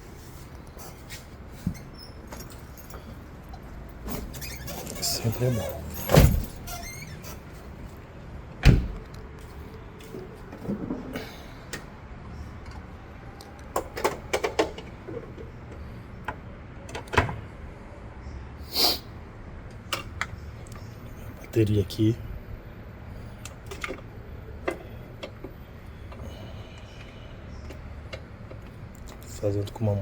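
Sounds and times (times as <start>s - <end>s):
car parts knocking and clicking: 13.6s - 17.4s, 23.5s - 26.2s.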